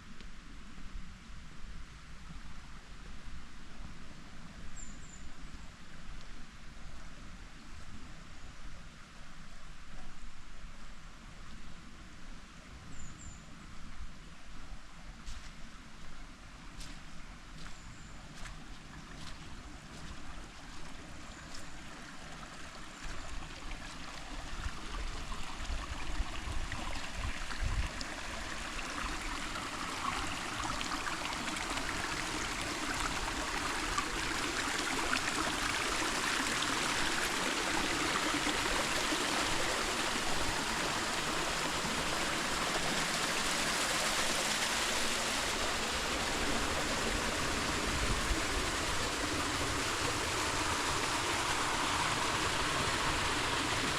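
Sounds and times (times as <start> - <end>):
creek water flowing: 13.6 - 53.9.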